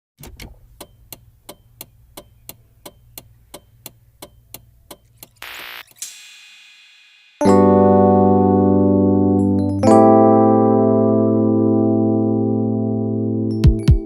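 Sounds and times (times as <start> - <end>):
mechanical ticking: 0.5 - 7.4.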